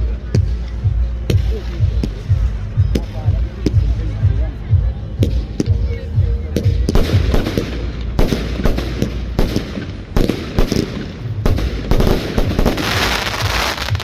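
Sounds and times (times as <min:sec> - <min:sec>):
crackling fireworks barrage: 0:06.6 - 0:14.0.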